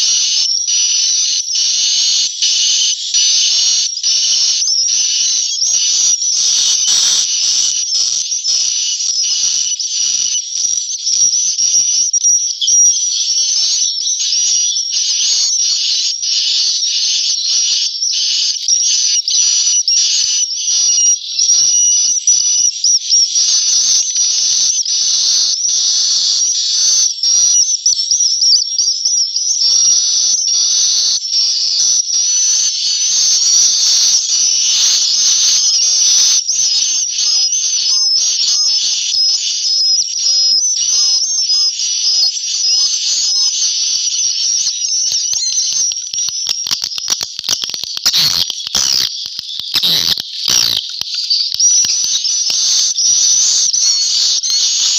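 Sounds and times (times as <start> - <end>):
swiftlets twittering: 44.6 - 54.3
sharp clicks: 45.1 - 52.9.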